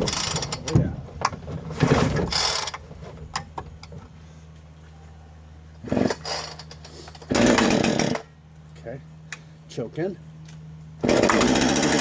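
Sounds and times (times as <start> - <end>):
chainsaw engine idling: 5.7 - 10.1, 11.0 - 12.0.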